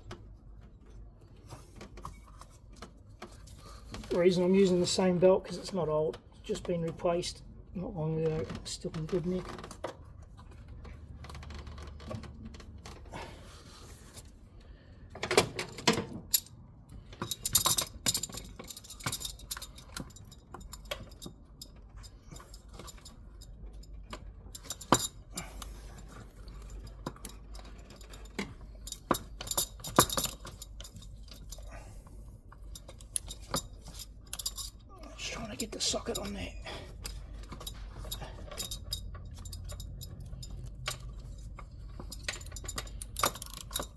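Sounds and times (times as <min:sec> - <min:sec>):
metal tools clinking on engine parts: 0:15.4 - 0:43.9.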